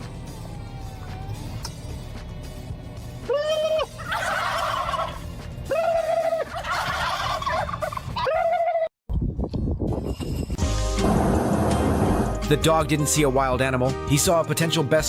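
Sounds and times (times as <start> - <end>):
animal drawn-out calls: 3.3 - 8.9.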